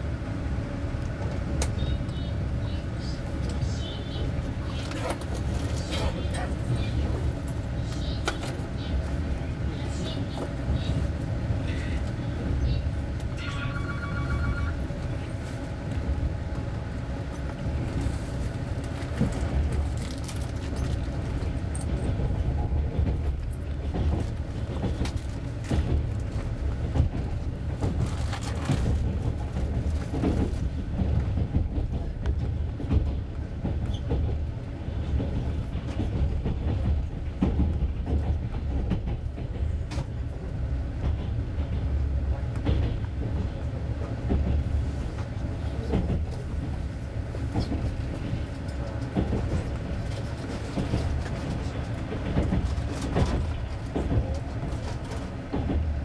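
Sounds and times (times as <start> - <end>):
train running gear rumble: 0.0 - 56.0
short pulsing beep: 13.4 - 14.8.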